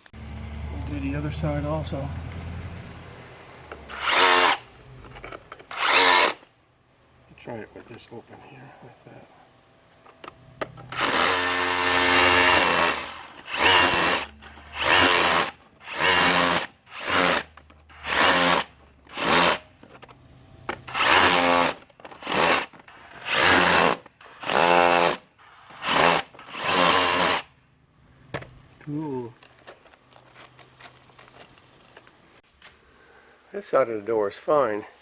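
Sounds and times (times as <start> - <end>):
motor whining: 3.7 - 6.5, 10.7 - 19.6, 20.8 - 27.4
rotary hammer chipping mortar: 10.9 - 19.7, 20.8 - 27.5.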